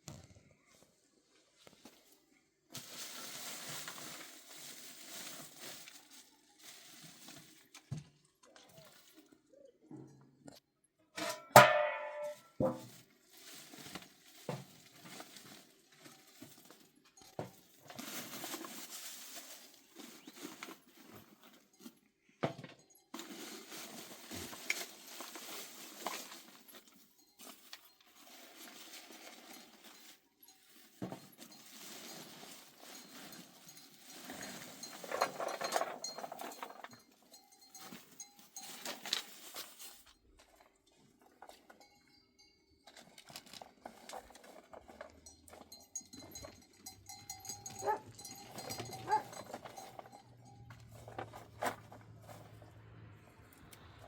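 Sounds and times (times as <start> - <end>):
livestock bells clinking: 29.4 - 39.2, 41.6 - 43.2, 44.4 - 51.6.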